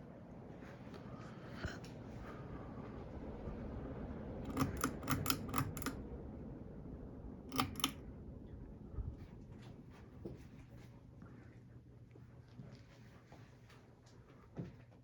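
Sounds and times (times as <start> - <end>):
ceiling fan whirring: 0.0 - 15.0
sharp clicks: 4.5 - 6.0, 7.5 - 8.0.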